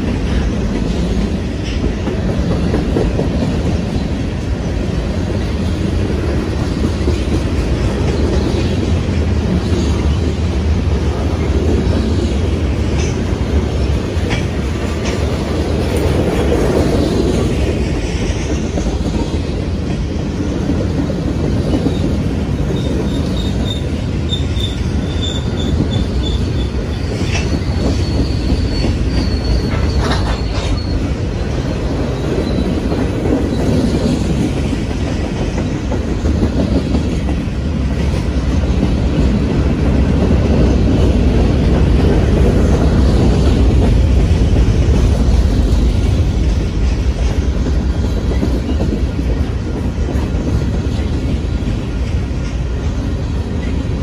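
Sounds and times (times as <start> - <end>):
freight train rumbling on rails: 0.0 - 54.0
high-pitched wheel squeals: 23.0 - 27.1, 27.8 - 31.1.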